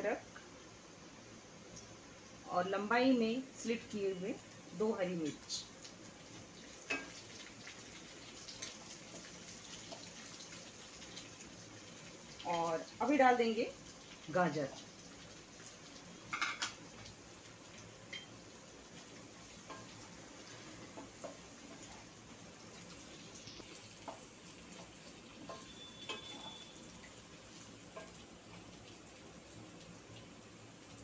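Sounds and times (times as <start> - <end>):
vegetables sizzling in a pan: 0.0 - 31.0
spatula tapping and scraping pan: 6.8 - 7.2, 19.6 - 20.0, 20.9 - 22.0, 24.0 - 26.6, 27.8 - 28.7.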